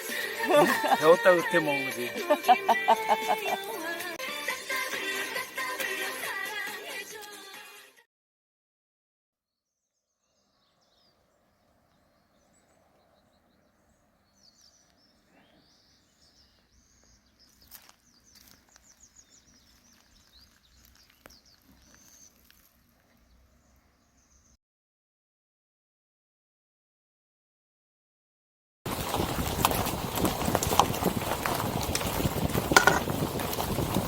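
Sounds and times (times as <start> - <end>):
small birds chirping: 9.5 - 24.6.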